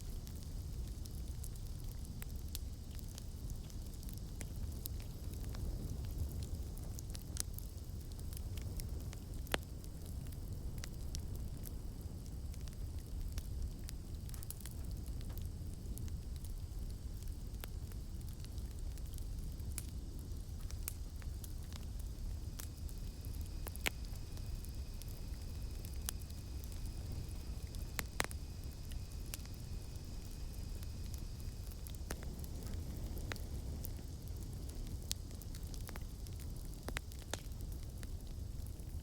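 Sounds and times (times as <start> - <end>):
campfire crackling: 0.0 - 39.0
cicadas droning: 9.9 - 35.4.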